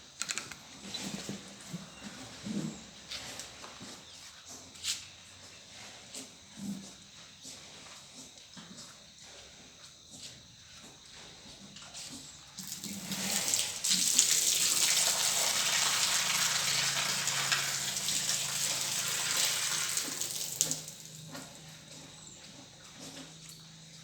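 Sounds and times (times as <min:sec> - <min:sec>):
water running: 0:12.6 - 0:21.4.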